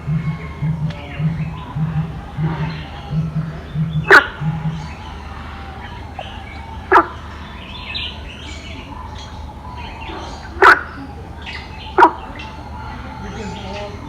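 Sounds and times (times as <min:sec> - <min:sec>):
faint bird chirping: 0:00.0 - 0:14.0
loud sharp bird calls: 0:00.0 - 0:14.0.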